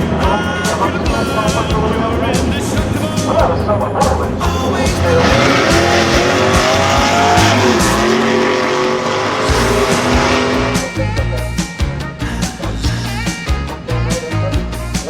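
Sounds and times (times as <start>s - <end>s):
background music: 0.0s - 15.0s
tyres screeching: 4.0s - 11.0s
car engine revving hard: 4.5s - 11.0s.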